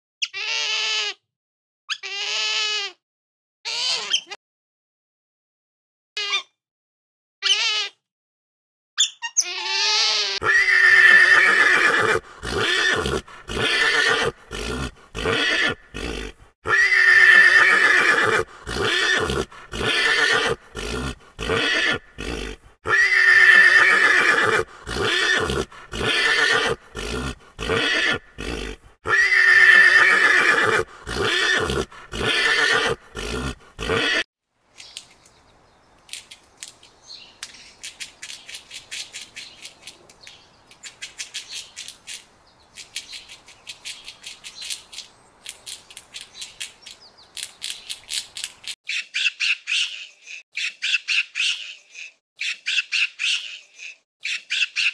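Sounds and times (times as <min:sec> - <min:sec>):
horse whinnying: 0:09.6 - 0:34.2.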